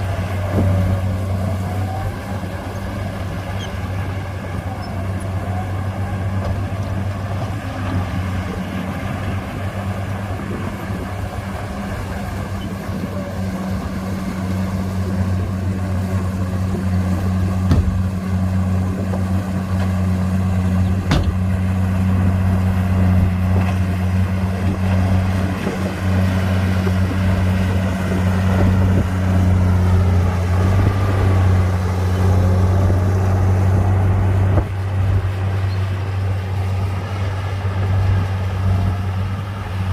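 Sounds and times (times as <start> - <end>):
diesel machinery engine hum: 0.0 - 39.9
sharp knocks: 17.6 - 18.0.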